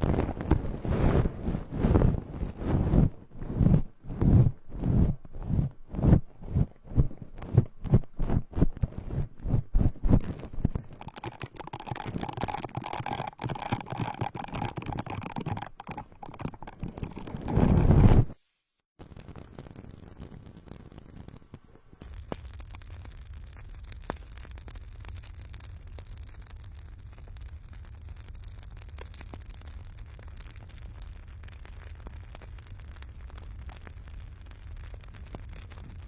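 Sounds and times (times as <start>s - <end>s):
brush stroking microphone: 0.0s - 18.4s.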